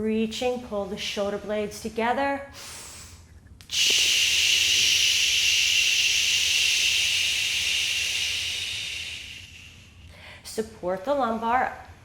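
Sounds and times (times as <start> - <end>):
forceful exhale through mouth: 3.7 - 10.0.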